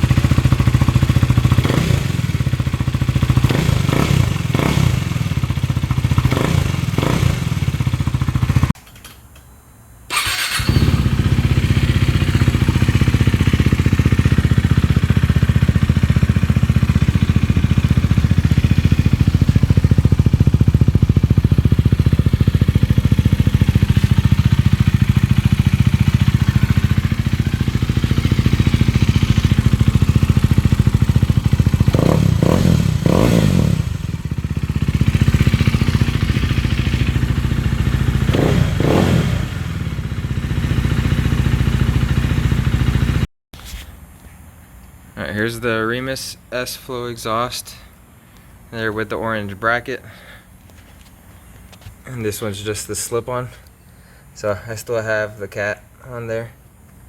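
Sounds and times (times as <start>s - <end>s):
motorcycle engine revving and idling: 0.0s - 8.8s, 10.1s - 43.3s.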